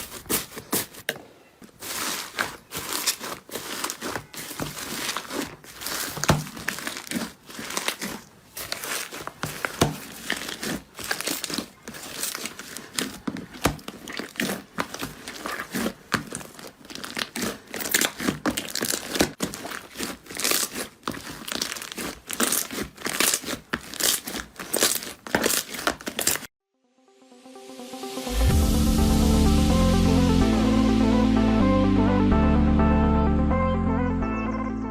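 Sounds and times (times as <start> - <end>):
slime crackling and popping: 1.8 - 26.5.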